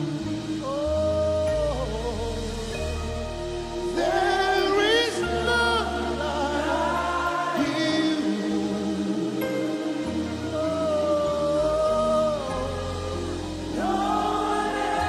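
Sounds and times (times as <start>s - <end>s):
low bass notes: 0.0s - 15.0s
person singing long held notes: 0.0s - 15.0s
sustained keyboard chords: 0.0s - 15.0s.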